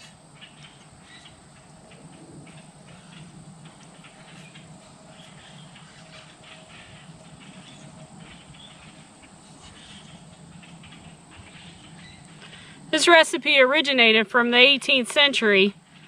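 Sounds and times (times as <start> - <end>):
light ticks and rustles: 0.0 - 12.8
low steady hum: 0.0 - 16.0.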